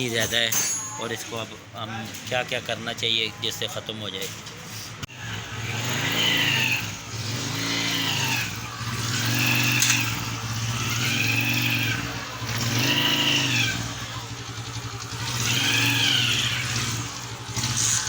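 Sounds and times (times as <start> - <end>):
motorcycle engine revving: 5.1 - 18.0.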